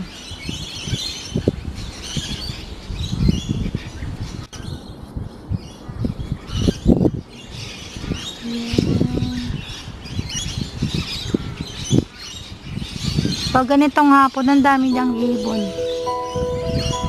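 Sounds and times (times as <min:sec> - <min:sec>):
birds chirping and twittering: 0:00.0 - 0:17.0
wind rumble on microphone: 0:00.0 - 0:17.0.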